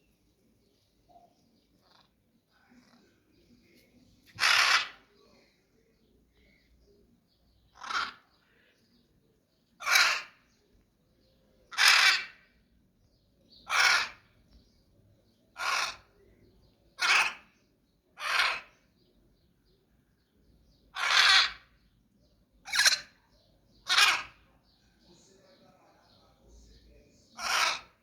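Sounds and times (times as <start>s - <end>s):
bird harsh rasping calls: 4.3s - 5.2s, 7.7s - 8.5s, 9.8s - 10.6s, 11.7s - 12.6s, 13.6s - 14.4s, 15.5s - 16.2s, 17.0s - 17.6s, 18.2s - 19.0s, 20.8s - 21.9s, 22.6s - 24.5s, 27.3s - 28.0s.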